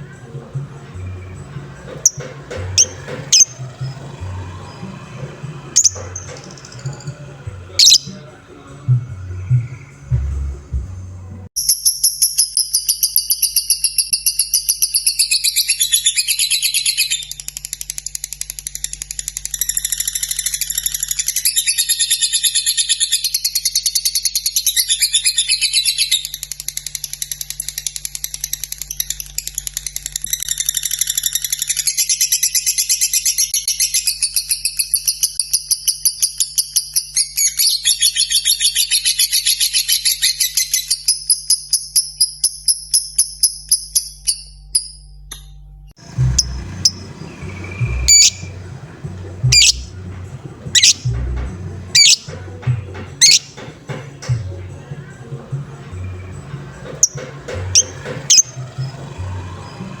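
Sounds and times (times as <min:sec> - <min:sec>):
lovebird singing fast shrill chirps: 0:05.8 - 0:06.7, 0:07.8 - 0:08.2, 0:46.4 - 0:48.6, 0:49.4 - 0:49.9, 0:50.8 - 0:51.1, 0:51.9 - 0:52.3, 0:53.2 - 0:53.5, 0:57.8 - 0:58.5.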